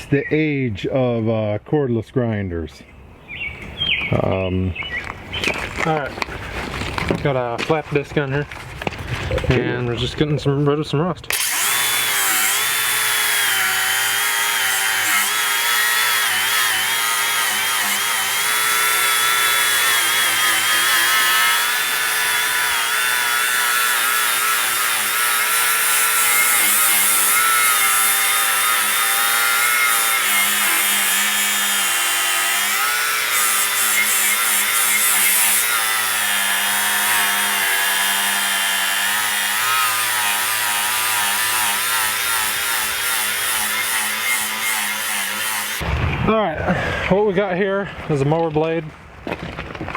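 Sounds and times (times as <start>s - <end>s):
angle grinder grinding metal: 11.3s - 45.8s.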